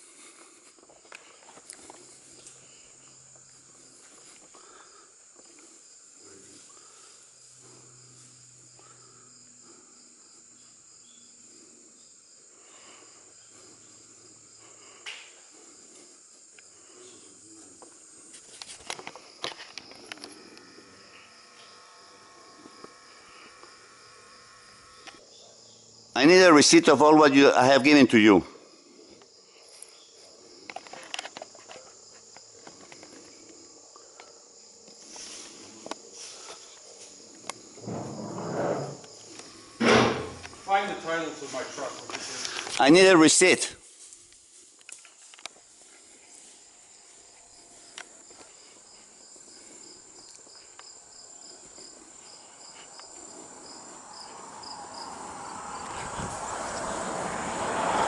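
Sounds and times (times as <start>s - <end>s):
crickets chirping: 0.0s - 58.0s
high-pitched insect trill: 1.0s - 58.0s
high-pitched insect chirring: 19.2s - 26.2s
vehicle approaching: 37.8s - 39.1s, 53.4s - 58.0s.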